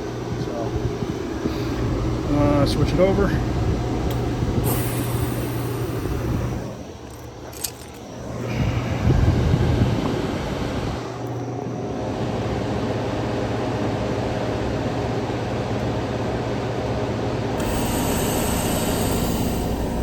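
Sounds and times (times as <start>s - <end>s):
compressor humming: 0.0s - 20.0s
fan rushing: 0.0s - 20.0s
high hiss: 4.6s - 6.8s, 17.6s - 20.0s.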